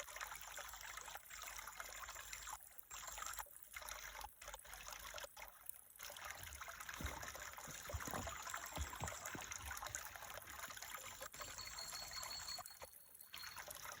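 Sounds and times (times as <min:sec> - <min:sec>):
water trickling: 0:00.0 - 0:14.0
faint thin high tone: 0:11.4 - 0:13.7.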